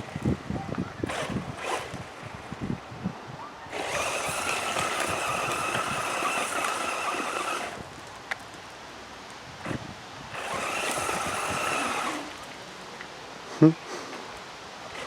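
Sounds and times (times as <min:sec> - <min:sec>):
electric motor whine: 0:00.8 - 0:02.6, 0:03.7 - 0:08.0, 0:09.6 - 0:12.6.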